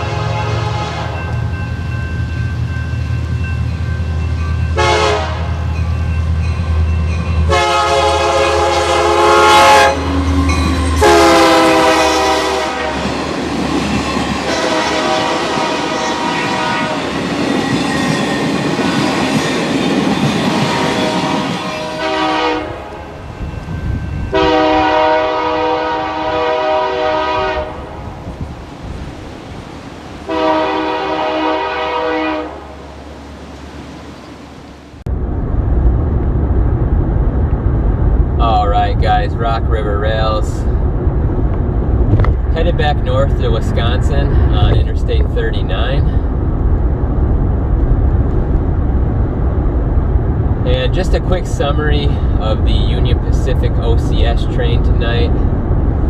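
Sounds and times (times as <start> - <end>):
train air horn blasts: 0.0 - 1.5, 4.7 - 5.8, 7.4 - 13.3, 14.4 - 17.3, 20.4 - 23.3, 24.2 - 28.0, 30.3 - 32.8
locomotive and cars rumbling: 0.0 - 56.0.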